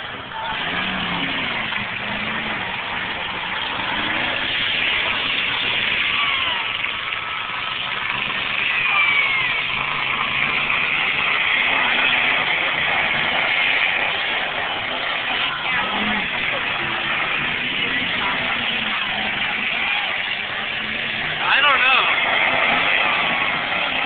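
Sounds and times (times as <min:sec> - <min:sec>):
car engines revving: 0:00.0 - 0:24.0
steady wash of noise: 0:00.0 - 0:24.0.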